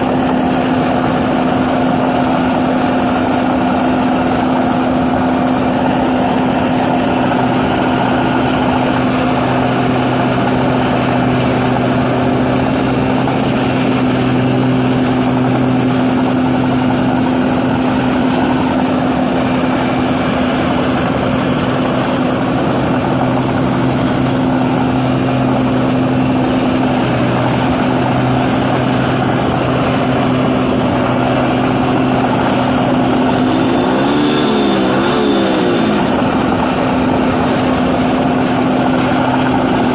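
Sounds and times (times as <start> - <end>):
combine harvester engine drone: 0.0 - 39.9
gliding pitched sounds: 21.8 - 37.8.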